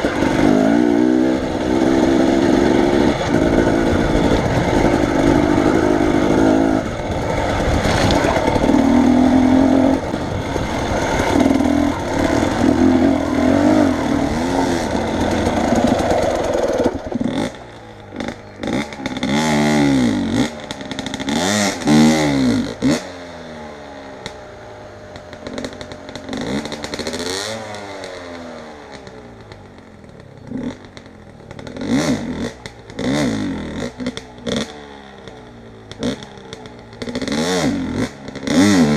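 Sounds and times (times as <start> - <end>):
vehicle engine revving: 0.0 - 23.3.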